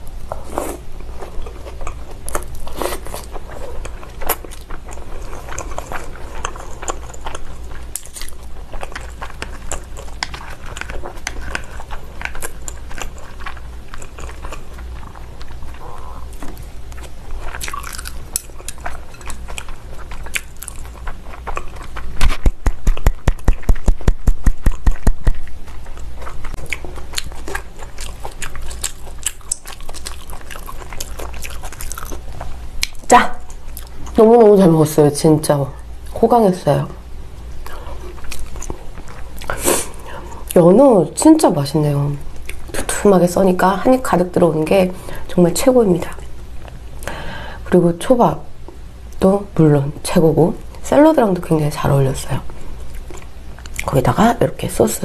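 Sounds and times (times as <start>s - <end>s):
person chewing: 0.3s - 34.2s, 37.6s - 40.6s, 52.8s - 53.9s.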